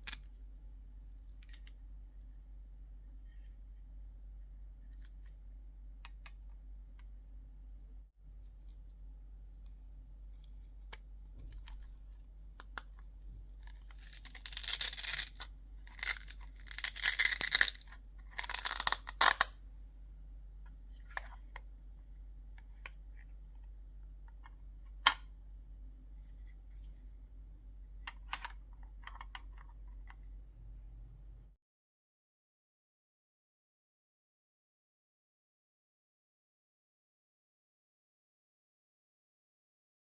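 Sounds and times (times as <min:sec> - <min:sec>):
toy pieces clicking and tapping: 0:00.0 - 0:00.2, 0:14.0 - 0:19.5
packaging tearing and rustling: 0:13.8 - 0:19.5.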